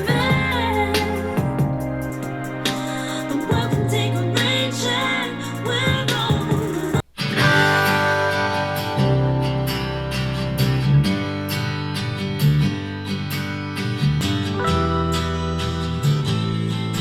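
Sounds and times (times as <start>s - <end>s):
strummed guitar music: 7.2s - 17.0s.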